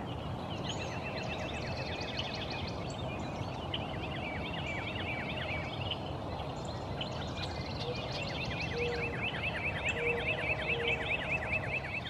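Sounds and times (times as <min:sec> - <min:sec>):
songbirds chirping: 0:00.0 - 0:03.0, 0:09.3 - 0:12.0.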